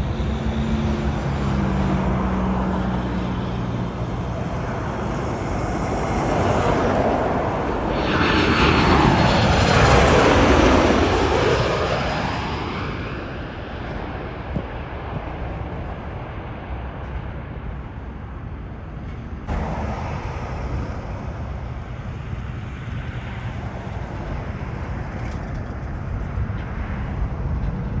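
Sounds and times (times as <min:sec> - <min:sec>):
airplane jet engines rumbling: 0:00.0 - 0:28.0
wind noise: 0:00.0 - 0:28.0.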